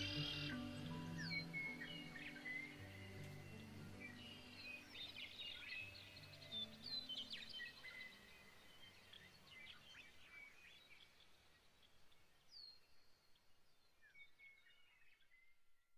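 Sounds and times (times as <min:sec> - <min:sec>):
music track: 0:00.0 - 0:07.1
birds chirping and whistling: 0:00.0 - 0:08.6.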